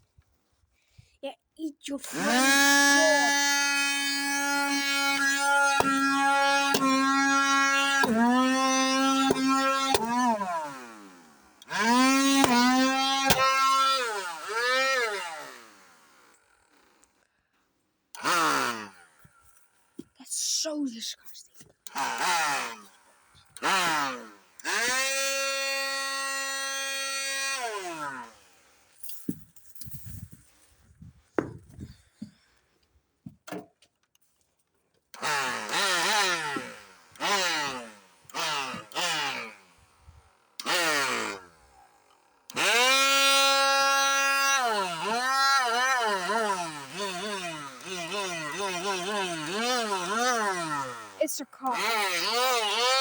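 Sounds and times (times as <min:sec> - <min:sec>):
handheld vacuum cleaner whining: 0:02.0 - 0:16.1, 0:18.1 - 0:20.1, 0:21.7 - 0:28.6, 0:35.1 - 0:53.0.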